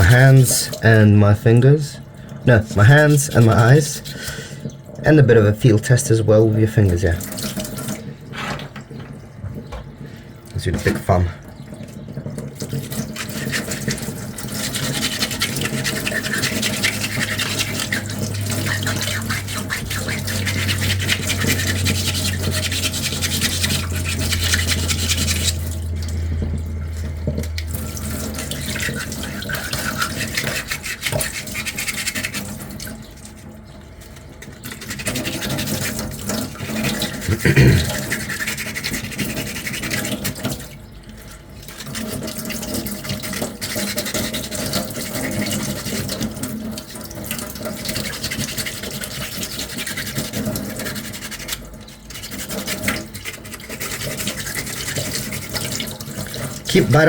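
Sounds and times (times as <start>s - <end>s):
low steady hum: 0.0s - 31.9s
sandpaper rubbing back and forth: 18.9s - 25.6s.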